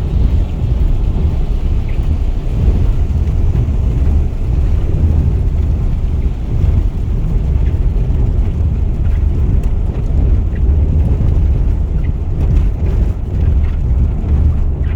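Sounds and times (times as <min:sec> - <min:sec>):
deep rain rumble: 0:00.0 - 0:14.9.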